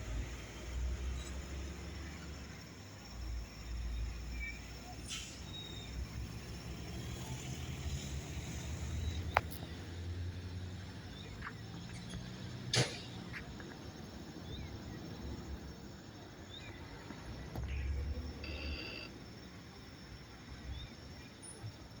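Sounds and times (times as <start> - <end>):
faint bird chirps: 17.6 - 19.1.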